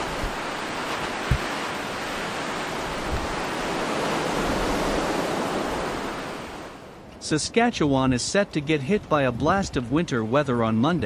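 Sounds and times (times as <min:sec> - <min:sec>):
wind gusts buffeting microphone: 0:00.0 - 0:06.6
blizzard wind blowing: 0:00.0 - 0:10.0.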